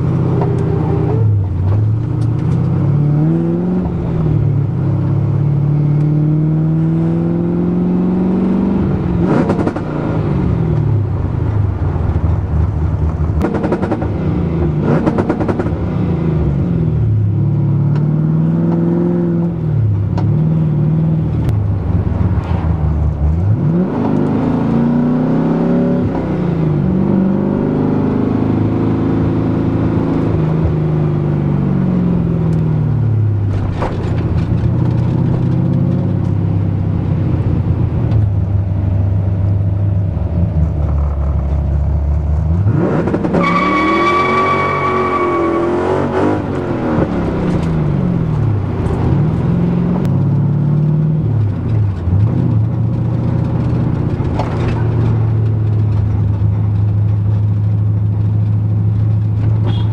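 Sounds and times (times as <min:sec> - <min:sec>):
car engine revving: 0:00.0 - 0:59.9
exhaust pops: 0:33.4 - 0:36.4.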